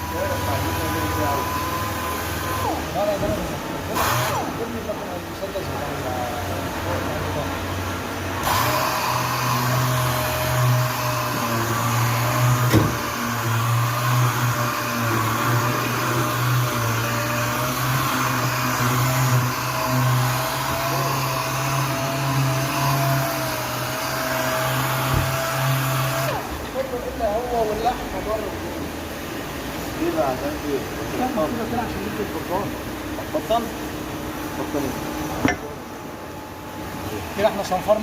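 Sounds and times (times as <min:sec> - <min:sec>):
orbital sander whining: 0:00.0 - 0:04.8, 0:08.3 - 0:26.6.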